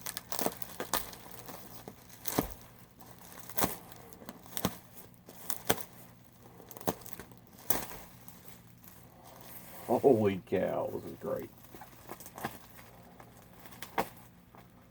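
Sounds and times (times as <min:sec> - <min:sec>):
packing material crinkling: 0:00.0 - 0:14.9.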